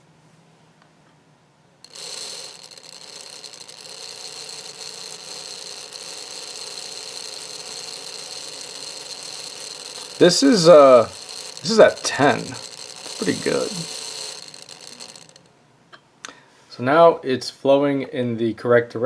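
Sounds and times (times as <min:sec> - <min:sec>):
model locomotive motor whine: 0:01.9 - 0:15.5.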